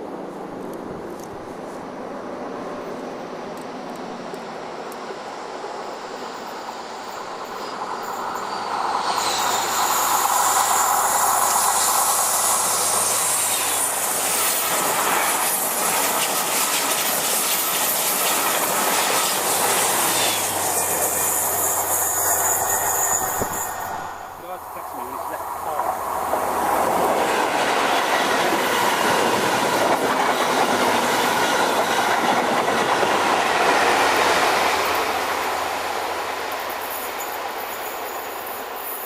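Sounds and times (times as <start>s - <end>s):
diesel train passing: 0.0s - 39.0s
wheels squealing on rails: 6.0s - 39.0s.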